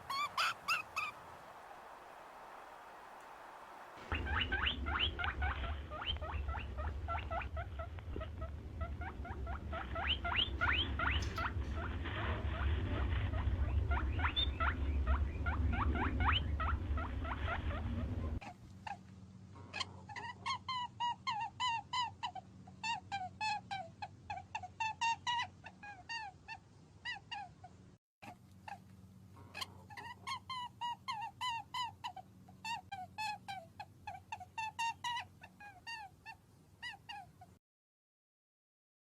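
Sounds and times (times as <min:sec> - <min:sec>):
short animal calls: 0:00.0 - 0:01.4
low rumble: 0:04.0 - 0:18.4.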